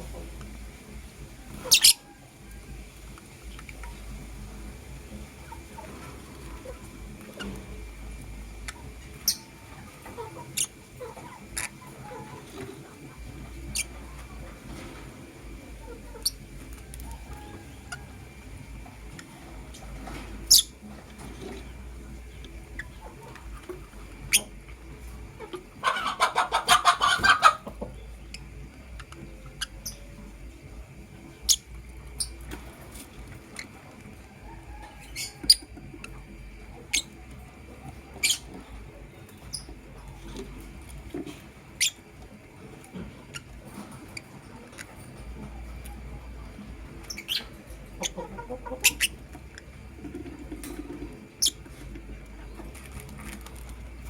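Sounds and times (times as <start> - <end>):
rapid bird chattering calls: 1.6 - 2.2, 8.6 - 14.2, 19.6 - 20.9, 38.0 - 40.0, 46.9 - 49.7.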